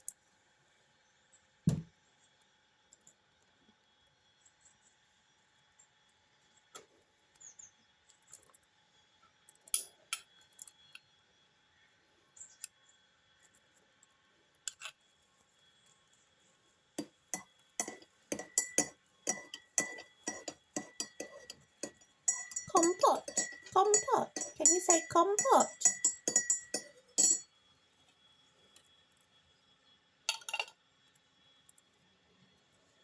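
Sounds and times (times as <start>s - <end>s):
light clinking taps: 17.0s - 27.4s.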